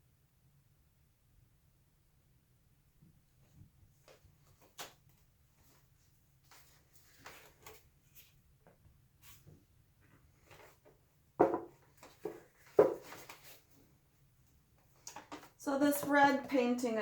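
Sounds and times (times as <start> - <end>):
faint taps and rustles: 3.4 - 13.8, 14.8 - 16.6
containers knocking on table: 11.4 - 11.8, 12.8 - 13.1.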